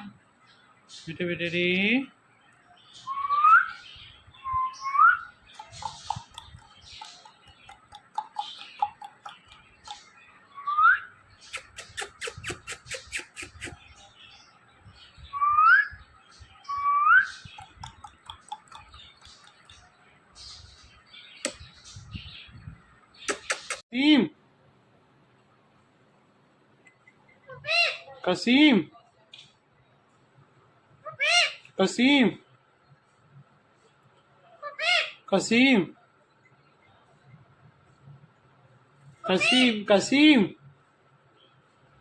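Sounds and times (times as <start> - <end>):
parrot chatter and clicks: 5.5 - 10.1, 11.5 - 13.8, 17.4 - 19.9, 23.2 - 23.8.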